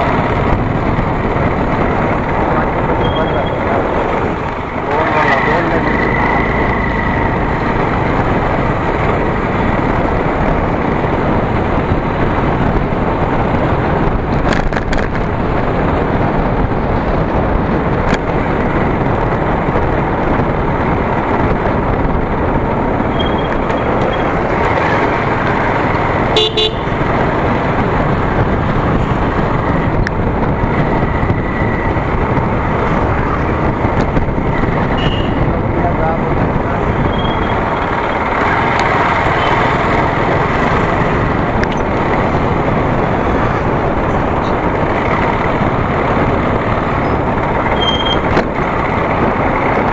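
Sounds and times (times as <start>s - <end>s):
motorcycle road noise: 0.0s - 49.9s
wind rushing: 0.0s - 49.9s
horn toot: 26.3s - 27.0s, 35.0s - 35.5s.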